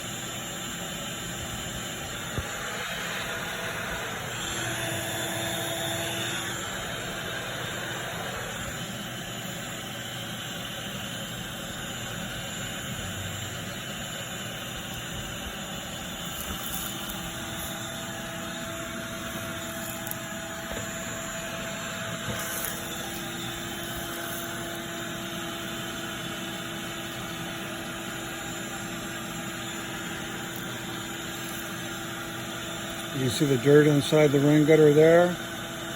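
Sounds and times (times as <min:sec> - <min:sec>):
machine drone: 0:00.0 - 0:24.8.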